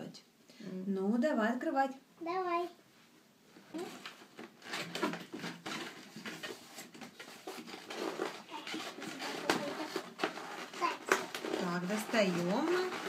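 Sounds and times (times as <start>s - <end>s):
packaging rustling: 3.7s - 13.0s.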